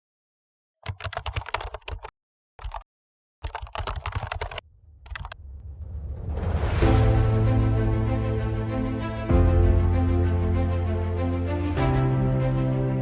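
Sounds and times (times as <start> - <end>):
keyboard typing clicks: 0.8 - 2.8, 3.4 - 5.4
rising noise swell into music: 5.4 - 11.3.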